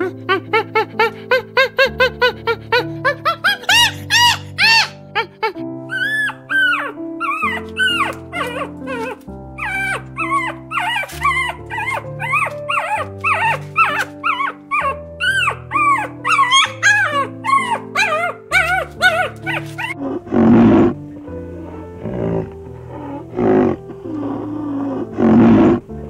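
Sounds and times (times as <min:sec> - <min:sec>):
background music: 0:00.0 - 0:26.0
puppy whimpering yelps: 0:00.1 - 0:20.9
large animal roaring calls: 0:20.0 - 0:21.0, 0:21.6 - 0:25.8.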